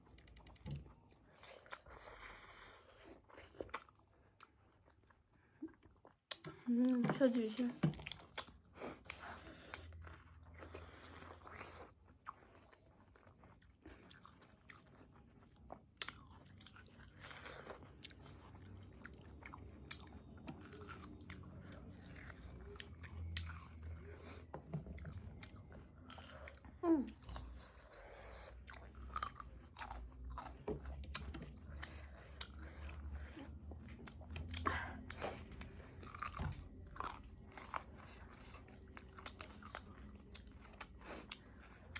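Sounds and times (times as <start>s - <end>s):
people chewing food: 0.0s - 41.9s.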